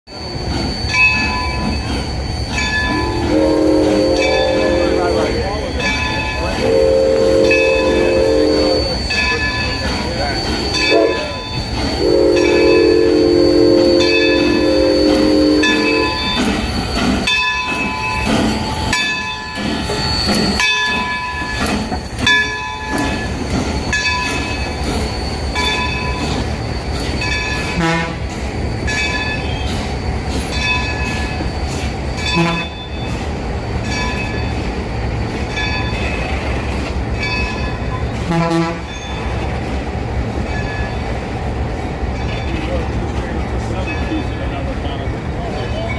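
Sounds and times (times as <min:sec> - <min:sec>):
train rumbling by: 0:00.1 - 0:45.9
train horn: 0:02.9 - 0:05.4, 0:06.5 - 0:09.0, 0:10.8 - 0:11.4, 0:12.0 - 0:16.3, 0:27.7 - 0:28.3, 0:32.3 - 0:32.8, 0:38.2 - 0:38.9
bell ringing: 0:07.4 - 0:27.8.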